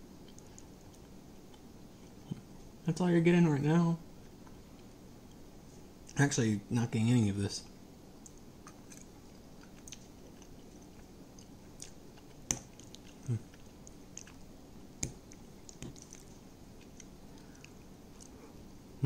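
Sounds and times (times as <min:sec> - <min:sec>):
person chewing pasta: 0:00.1 - 0:02.5, 0:08.2 - 0:18.7
small mouth clicks: 0:15.0 - 0:18.4.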